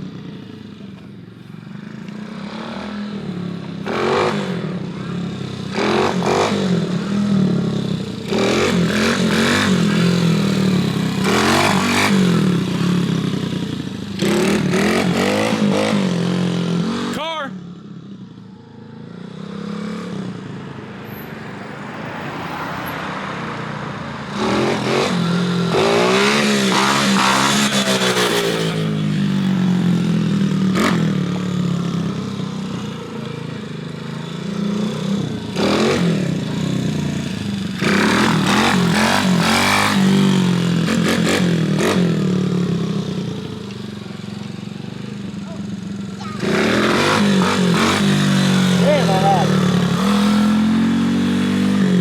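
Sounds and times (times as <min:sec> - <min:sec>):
pit bike engine revving: 0:02.3 - 0:17.2, 0:24.3 - 0:32.7, 0:34.2 - 0:43.6, 0:45.1 - 0:52.0.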